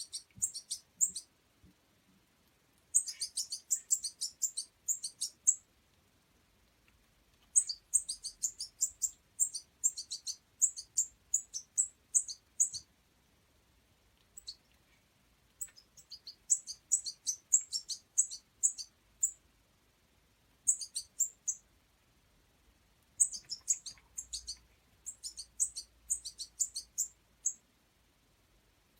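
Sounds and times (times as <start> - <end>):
goldfinch chirping: 0.0 - 1.3, 2.9 - 5.6, 7.5 - 12.9, 14.4 - 14.6, 15.6 - 19.4, 20.6 - 21.6, 23.2 - 27.6.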